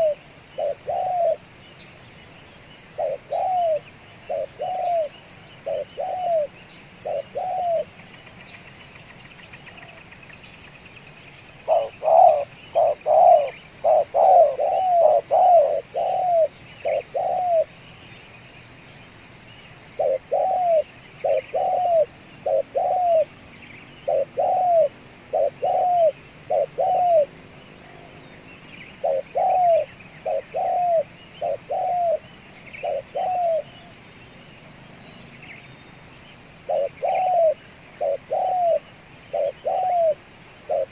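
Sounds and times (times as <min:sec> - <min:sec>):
dove cooing: 0:00.0 - 0:01.5, 0:02.9 - 0:07.9, 0:11.6 - 0:17.7, 0:20.0 - 0:23.3, 0:24.0 - 0:27.3, 0:29.0 - 0:33.9, 0:36.6 - 0:40.9
high insect drone: 0:00.0 - 0:40.9.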